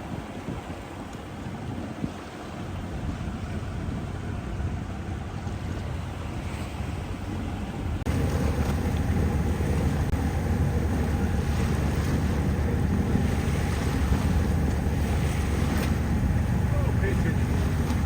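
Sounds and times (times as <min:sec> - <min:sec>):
boat engine drone: 0:00.0 - 0:18.0
water rushing: 0:05.0 - 0:18.0.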